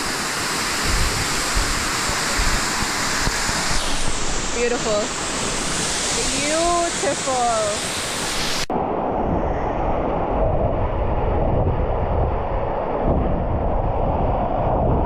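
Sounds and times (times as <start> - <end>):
waterfall roaring: 0.0 - 8.7.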